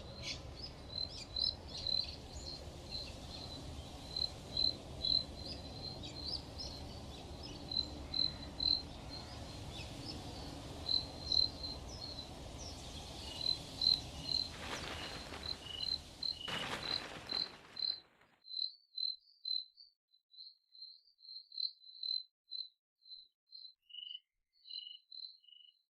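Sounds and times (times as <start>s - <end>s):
crickets chirping: 0.0s - 18.2s.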